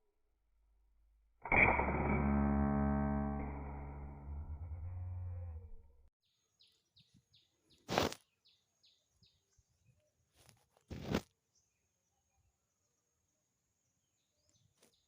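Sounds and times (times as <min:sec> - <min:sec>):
faint steady high tone: 0:01.5 - 0:05.8.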